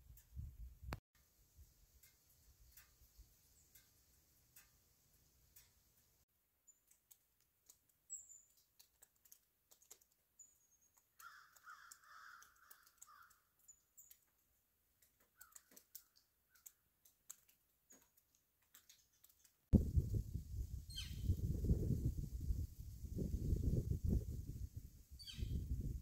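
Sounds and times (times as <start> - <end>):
faint clicks: 2.0 - 6.1, 6.7 - 10.2, 10.8 - 14.4, 15.0 - 19.6
high bird chirps: 20.9 - 21.4, 25.2 - 25.7.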